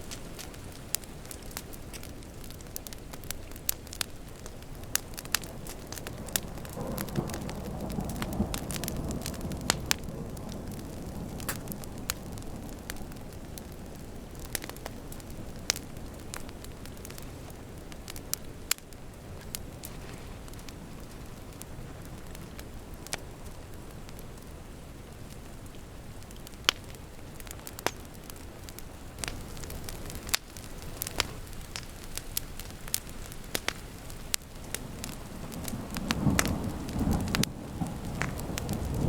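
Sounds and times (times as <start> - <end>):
rain hissing: 0.0 - 39.0
wood fire crackling: 0.0 - 39.0
thunder rumble: 5.5 - 14.3, 34.8 - 39.0.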